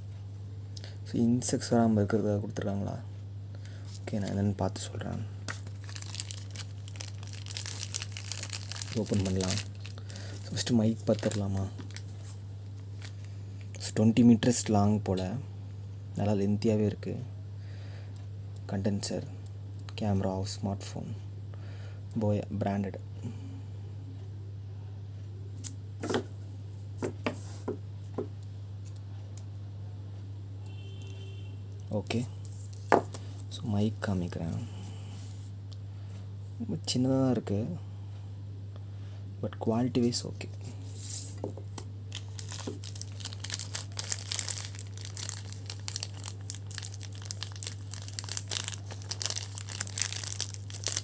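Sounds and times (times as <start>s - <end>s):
low electrical hum: 0.0s - 51.0s
packaging rustle: 5.5s - 12.4s, 41.2s - 51.0s
packaging clicks: 42.1s - 51.0s.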